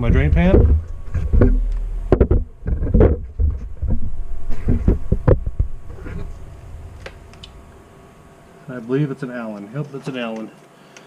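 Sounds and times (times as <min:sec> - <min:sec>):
drain pan knocking and scraping: 0:00.0 - 0:06.4.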